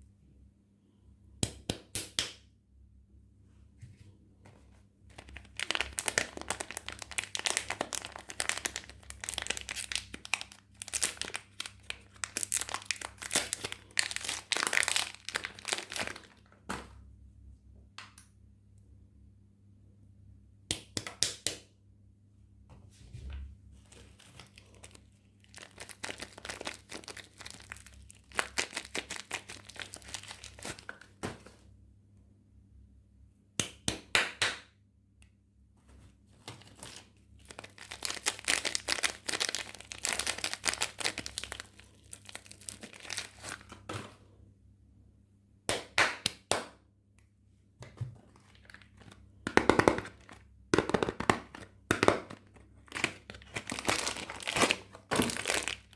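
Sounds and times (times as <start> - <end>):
soap packaging crinkling and tearing: 5.1 - 16.6, 23.8 - 31.2, 36.3 - 43.9, 48.2 - 55.9.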